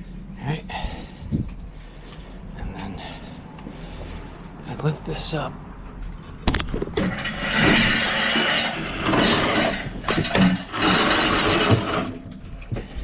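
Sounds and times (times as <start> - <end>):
heavy metal appliance scraping: 6.2 - 13.0.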